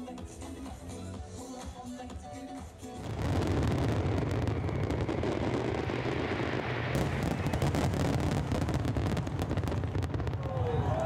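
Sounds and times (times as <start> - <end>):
fireworks booming and crackling: 2.9 - 11.0.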